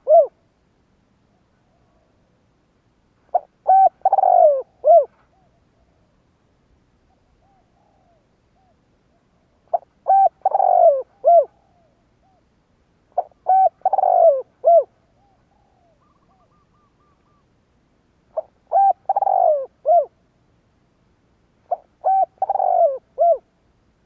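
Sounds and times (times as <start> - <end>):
dove cooing: 0.0 - 0.4, 3.3 - 6.0, 7.2 - 8.8, 9.4 - 12.4, 13.2 - 17.5, 18.3 - 20.2, 21.6 - 23.5
fainter dove coos: 0.0 - 0.4, 3.3 - 6.0, 7.1 - 12.4, 13.2 - 17.5, 18.3 - 20.2, 21.7 - 23.5.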